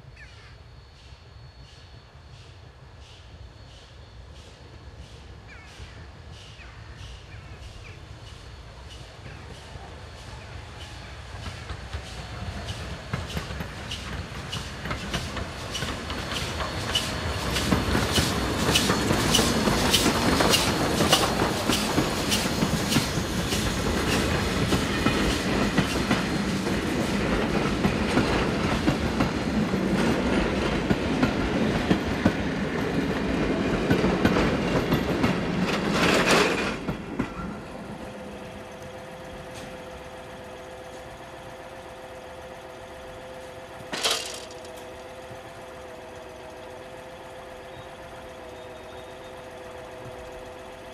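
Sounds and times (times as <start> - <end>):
train wheels clicking over rail joints: 4.3 - 48.3
steady hum: 37.8 - 50.9.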